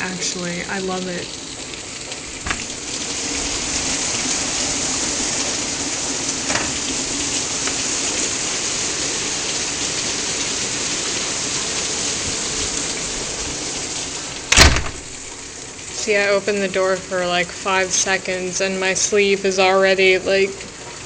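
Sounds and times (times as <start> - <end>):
heavy rain pouring: 0.0 - 21.0
loud knock: 14.5 - 15.2.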